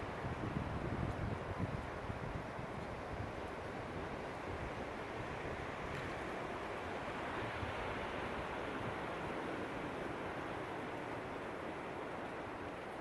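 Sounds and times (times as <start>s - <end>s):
wind buffeting microphone: 0.0s - 9.4s
strong gusting wind: 0.0s - 13.0s.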